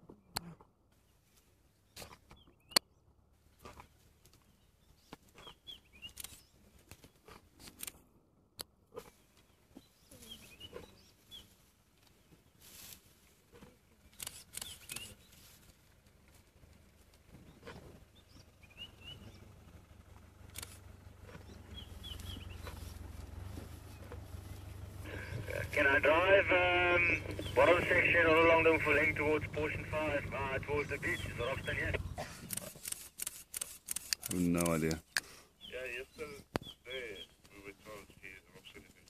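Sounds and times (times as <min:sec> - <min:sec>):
small birds chirping: 0:01.0 - 0:03.0, 0:03.6 - 0:07.8, 0:09.0 - 0:12.6, 0:13.8 - 0:15.6, 0:16.9 - 0:39.0
low rumble: 0:18.5 - 0:32.3.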